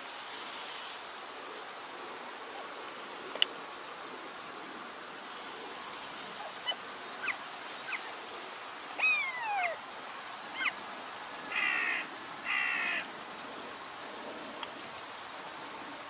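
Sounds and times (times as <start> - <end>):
faint hiss: 0.0 - 16.0
birds whistling calls: 6.4 - 8.0, 9.0 - 9.8, 10.4 - 10.8
harsh raspy bird calls: 9.0 - 9.8, 10.5 - 10.8, 11.5 - 13.0.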